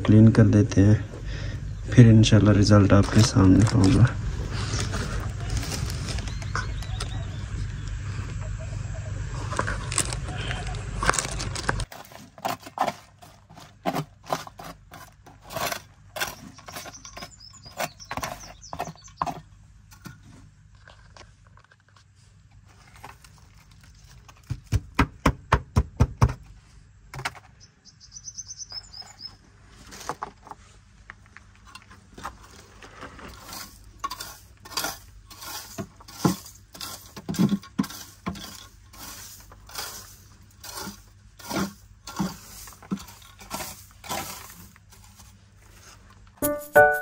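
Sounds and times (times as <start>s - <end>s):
scraper scraping floor: 3.0s - 6.6s, 32.2s - 47.0s.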